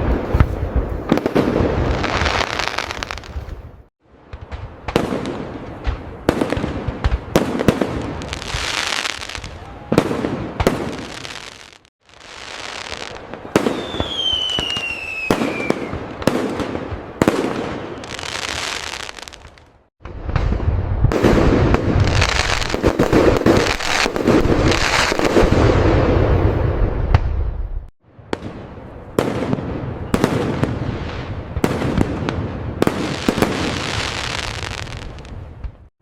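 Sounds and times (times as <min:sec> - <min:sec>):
barrage of firework booms: 0:00.0 - 0:35.9
firework bursts and crackle: 0:00.0 - 0:35.9
firework falling whistle: 0:13.6 - 0:16.1.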